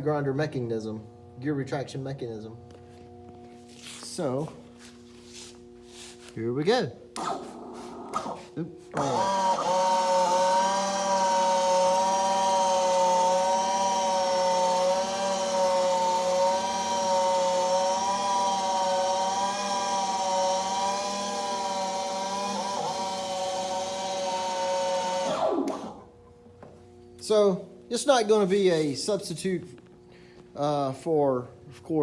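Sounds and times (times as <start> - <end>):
geared electric motor whining: 7.1 - 26.3.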